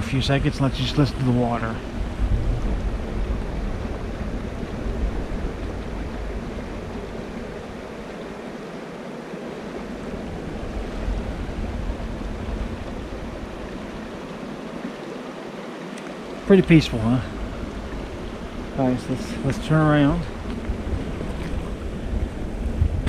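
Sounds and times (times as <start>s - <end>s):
low rumble: 0.0s - 7.8s
river rushing over rocks: 0.0s - 23.0s.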